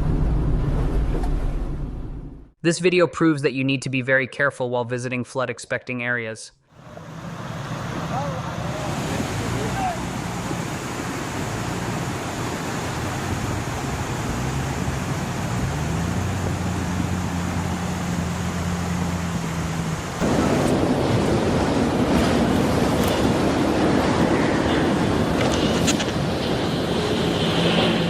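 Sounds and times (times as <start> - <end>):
rushing floodwater: 6.8 - 28.0.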